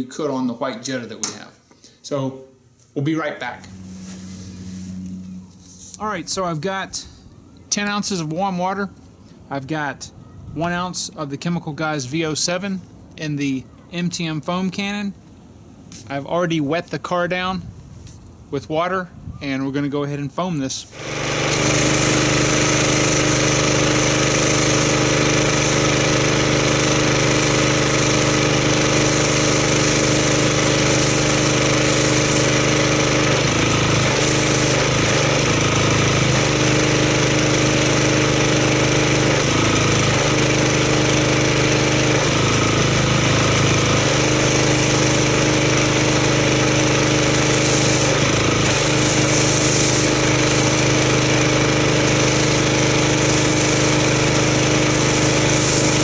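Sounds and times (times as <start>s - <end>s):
pressure washer engine running: 3.4s - 7.1s, 20.9s - 56.0s
foam spraying hiss: 3.7s - 5.1s, 20.9s - 37.8s, 42.2s - 51.1s, 52.0s - 56.0s.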